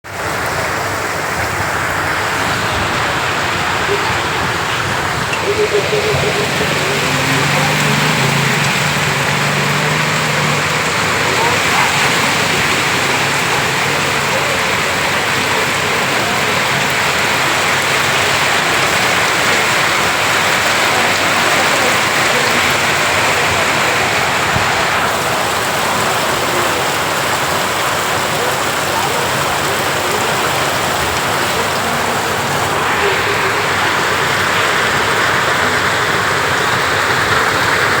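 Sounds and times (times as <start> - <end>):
heavy rain splashing on hard surfaces: 0.0 - 38.0.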